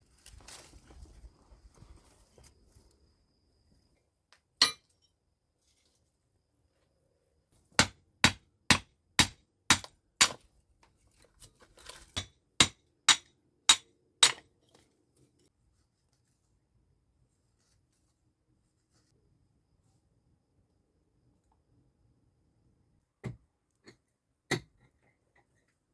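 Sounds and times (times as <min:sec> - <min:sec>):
hammer strikes with metallic ring: 0:04.6 - 0:04.9, 0:12.2 - 0:14.4.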